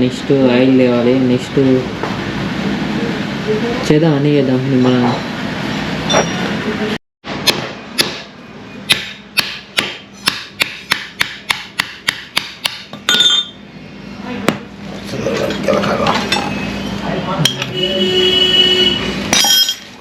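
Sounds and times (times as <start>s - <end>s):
ringing metal clang: 6.1s - 6.5s, 13.1s - 13.6s, 19.3s - 19.9s.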